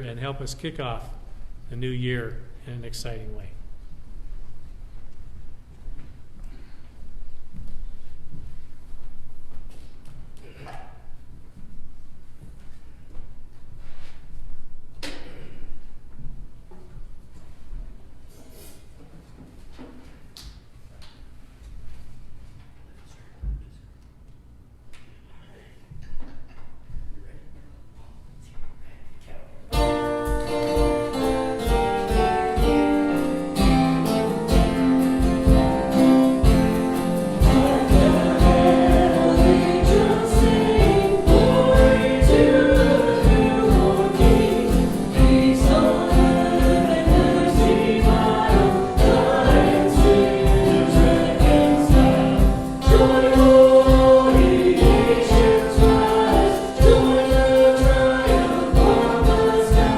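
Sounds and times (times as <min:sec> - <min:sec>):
band music with steady beat: 0:29.8 - 0:59.9
people singing: 0:29.8 - 0:59.9.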